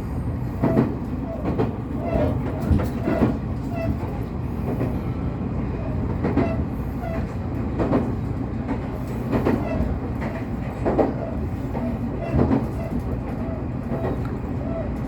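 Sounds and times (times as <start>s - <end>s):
train rumbling on track: 0.0s - 15.0s
wheels clacking over rail joints: 0.4s - 5.0s, 5.7s - 15.0s.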